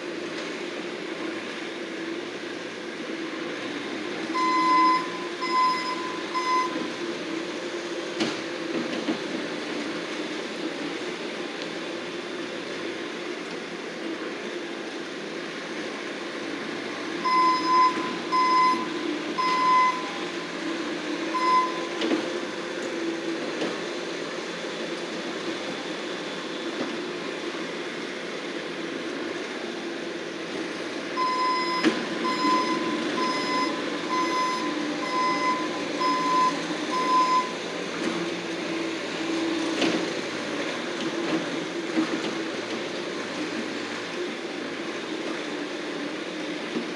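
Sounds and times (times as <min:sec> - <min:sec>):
skid steer engine running: 0:00.0 - 0:46.9
backup alarm beeping: 0:04.3 - 0:07.0, 0:17.2 - 0:20.4, 0:21.3 - 0:22.0, 0:31.2 - 0:37.6.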